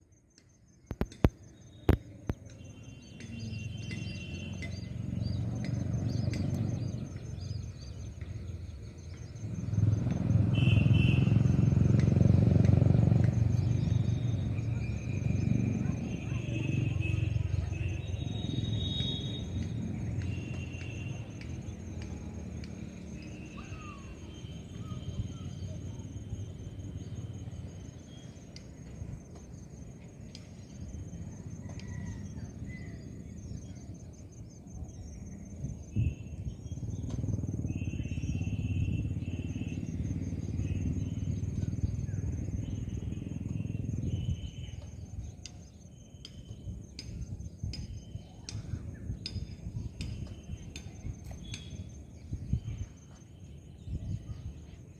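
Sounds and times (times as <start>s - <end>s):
insects trilling: 0.0s - 54.9s
sharp clicks: 0.4s - 2.6s.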